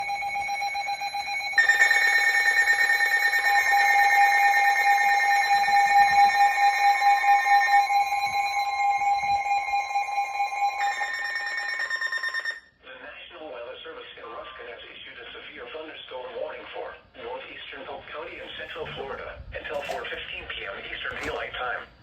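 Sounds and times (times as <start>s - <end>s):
electronic alarm beep tones: 0.0s - 12.7s.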